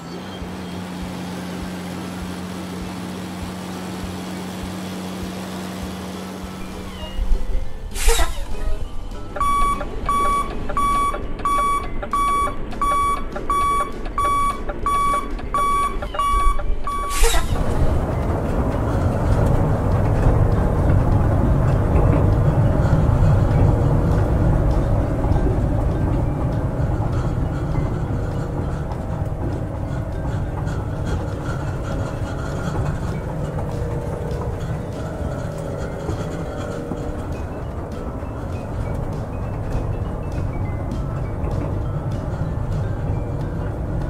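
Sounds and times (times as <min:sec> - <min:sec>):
reversing beeper: 0:06.6 - 0:17.8
steady low rumble: 0:06.6 - 0:44.0.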